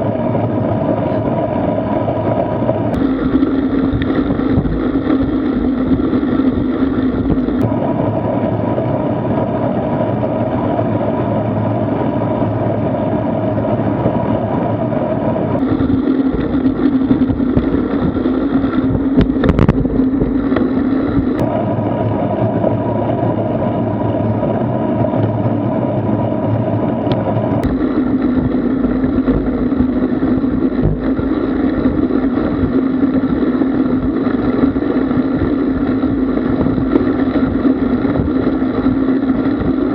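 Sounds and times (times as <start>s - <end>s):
road rumble: 0.0s - 39.9s
steady hum: 0.0s - 39.9s
wind noise on microphone: 0.0s - 39.9s.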